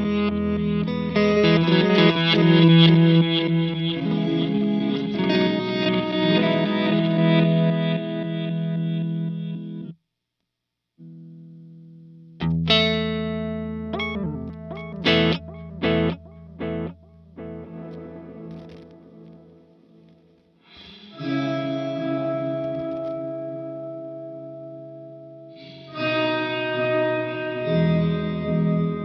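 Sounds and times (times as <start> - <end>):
overdriven electric guitar playing: 0.0 - 10.0, 11.0 - 29.0
guitar chord stabs ringing: 12.4 - 19.9, 20.8 - 29.0.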